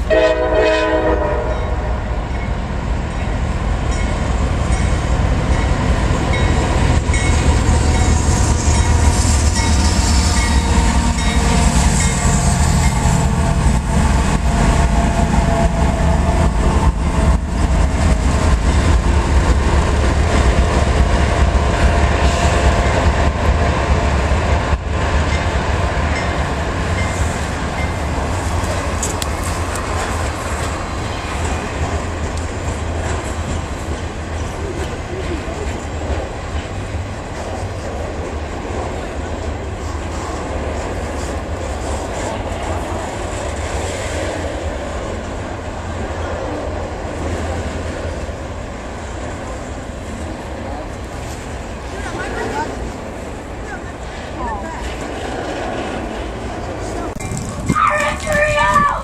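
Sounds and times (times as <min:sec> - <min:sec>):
diesel locomotive engine rumble: 0:00.0 - 0:59.0.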